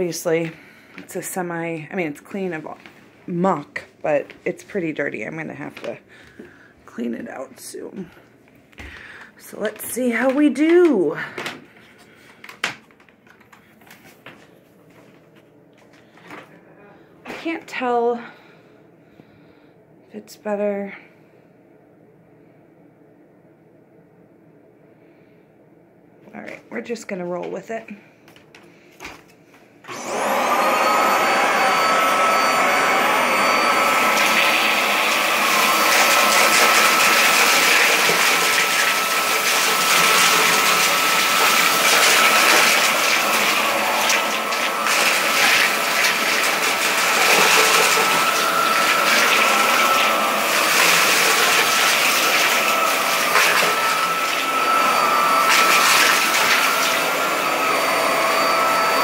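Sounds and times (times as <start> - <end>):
vacuum cleaner motor whine: 29.8 - 59.0.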